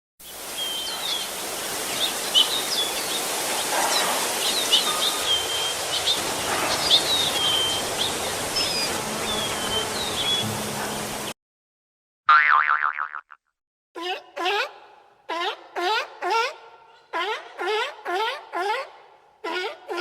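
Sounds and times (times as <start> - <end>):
birds chirping and whistling: 0.4 - 10.7.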